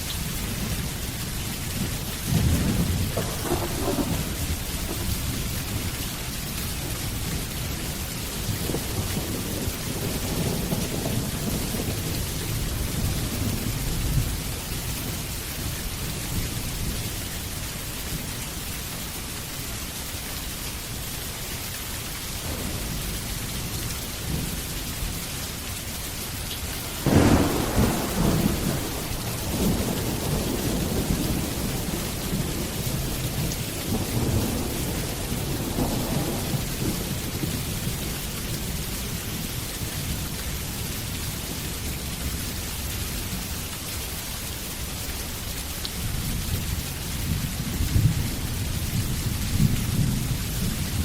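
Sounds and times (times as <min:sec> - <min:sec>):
heavy rain: 0:00.0 - 0:51.0
rolling thunder: 0:01.8 - 0:14.6, 0:22.4 - 0:25.2, 0:26.7 - 0:38.0.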